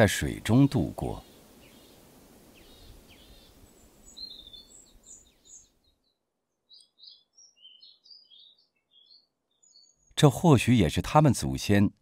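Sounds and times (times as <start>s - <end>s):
low steady background hiss: 0.0s - 7.2s
faint small birds chirping: 0.0s - 12.0s.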